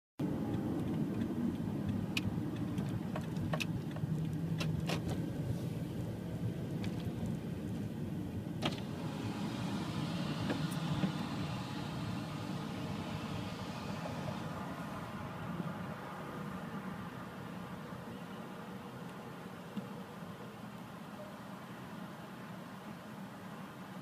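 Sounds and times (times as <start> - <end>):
car engine running: 0.2 - 20.0
hiss: 8.8 - 15.8.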